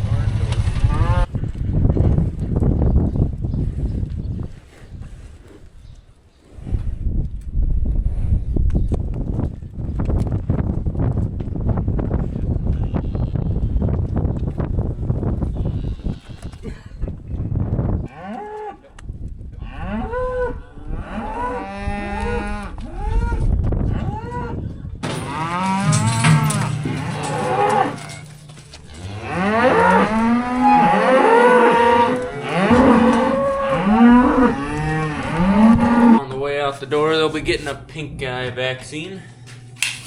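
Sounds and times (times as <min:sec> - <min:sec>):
cattle mooing: 0:25.1 - 0:36.3.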